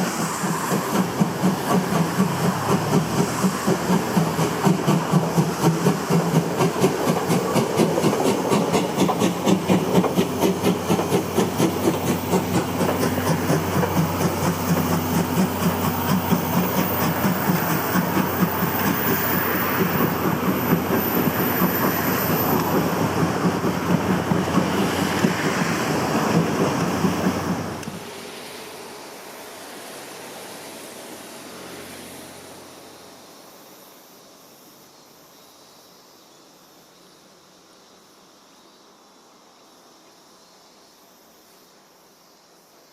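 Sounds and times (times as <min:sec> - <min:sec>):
steam locomotive exhaust beat: 0:00.0 - 0:31.2
steam hiss: 0:00.0 - 0:42.9
wheel clatter over rails: 0:00.4 - 0:28.0.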